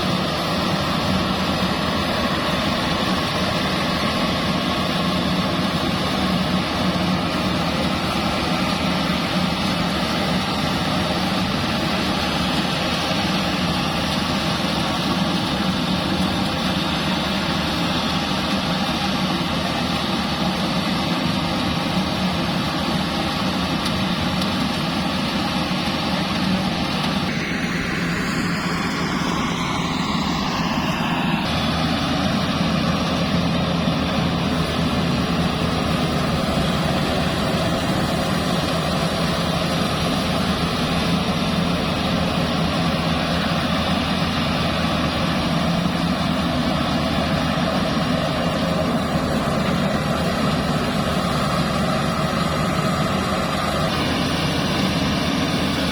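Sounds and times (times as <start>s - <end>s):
combine harvester running: 0.0s - 55.9s
falling high sweep: 27.2s - 33.4s.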